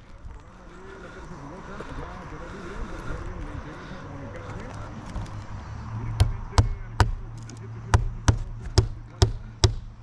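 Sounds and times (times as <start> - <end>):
hammer striking nails: 6.2 - 7.2, 7.9 - 10.0.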